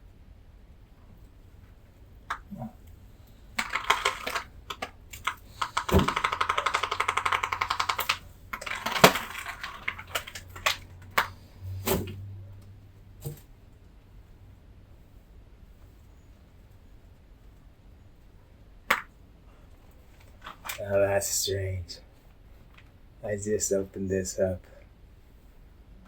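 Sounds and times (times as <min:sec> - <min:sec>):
rapid ratcheting clicks: 0:03.6 - 0:11.4.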